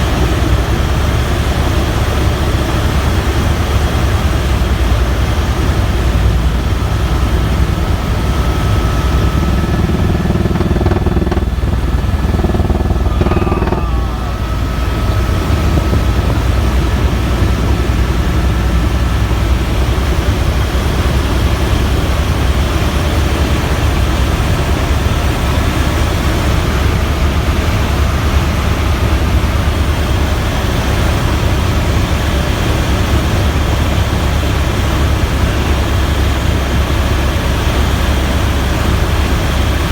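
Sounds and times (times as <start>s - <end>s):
helicopter rotor and engine drone: 0.0s - 39.9s
faint whine: 4.2s - 22.1s.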